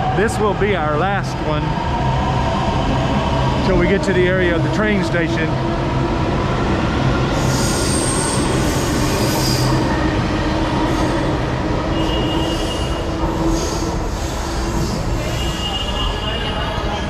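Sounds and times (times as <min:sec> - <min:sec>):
train rumbling on rails: 0:00.0 - 0:17.0
high-pitched wheel squeal: 0:11.9 - 0:17.0.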